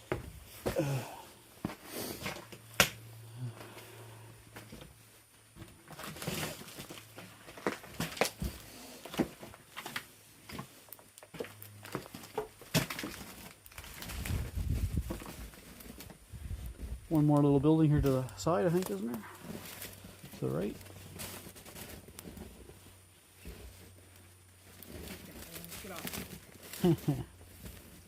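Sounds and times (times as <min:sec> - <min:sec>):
low handling or wind rumble: 0:14.0 - 0:15.6, 0:16.2 - 0:17.1.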